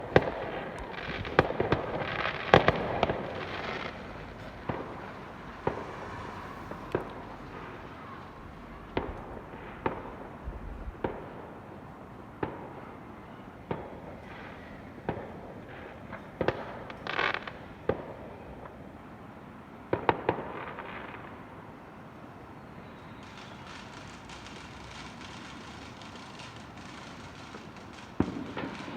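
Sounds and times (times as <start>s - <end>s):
fireworks bangs: 0.0s - 18.8s, 19.9s - 21.6s, 23.1s - 28.9s
fireworks crackling: 0.0s - 18.8s, 23.1s - 28.9s.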